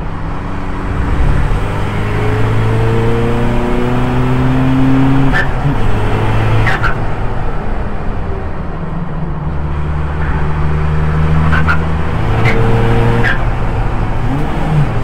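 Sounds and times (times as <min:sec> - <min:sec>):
race car engine accelerating: 0:00.1 - 0:07.4.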